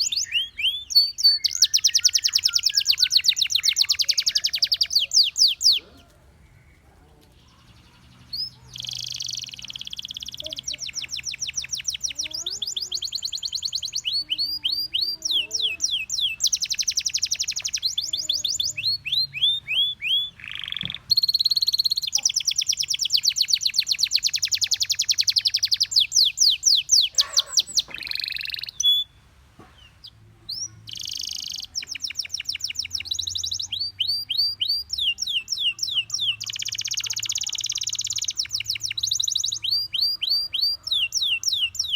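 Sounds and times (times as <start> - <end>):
canary singing trills: 0.0 - 41.9.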